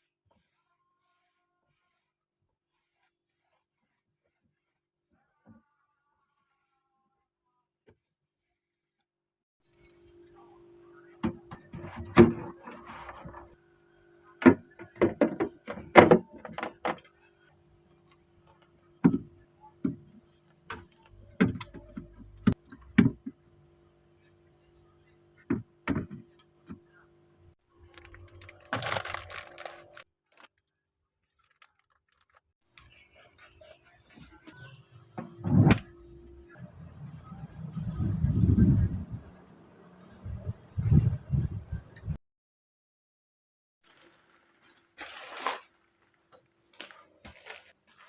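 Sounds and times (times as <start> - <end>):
objects knocking and thudding: 11.2 - 13.6, 14.4 - 17.1, 19.0 - 20.1
rustling: 27.8 - 30.6, 43.8 - 48.0.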